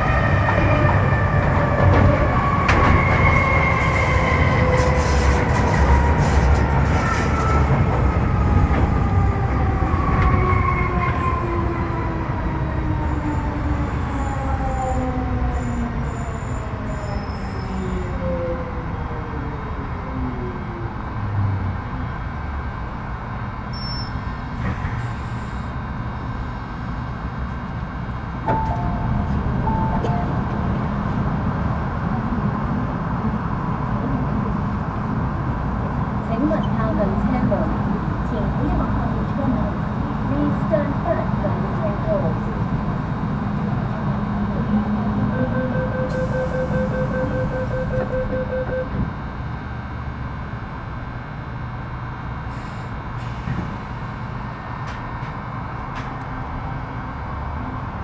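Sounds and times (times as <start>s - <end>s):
train equipment rumble and hum: 0.0s - 58.0s
door-closing warning beeps: 45.3s - 49.1s.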